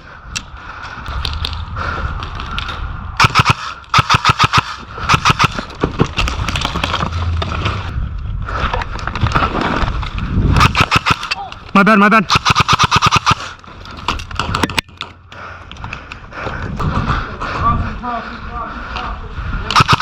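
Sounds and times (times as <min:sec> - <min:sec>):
airsoft gun full-auto bursts: 0:03.2 - 0:05.7, 0:10.6 - 0:11.3, 0:12.3 - 0:13.6, 0:19.7 - 0:20.0.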